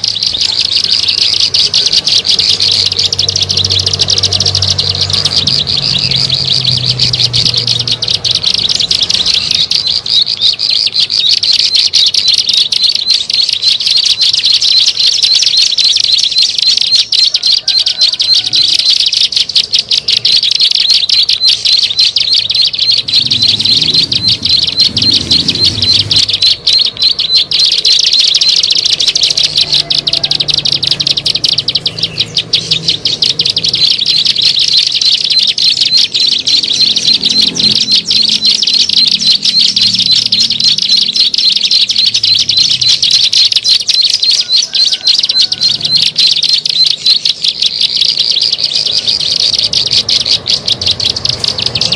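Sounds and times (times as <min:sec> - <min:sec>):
bird chattering trill: 0:00.0 - 0:51.9.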